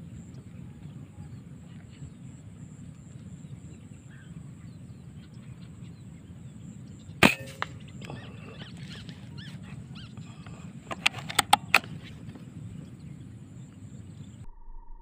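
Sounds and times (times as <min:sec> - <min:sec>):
low background rumble: 0:00.0 - 0:15.0
air rifle shot: 0:07.2 - 0:08.0.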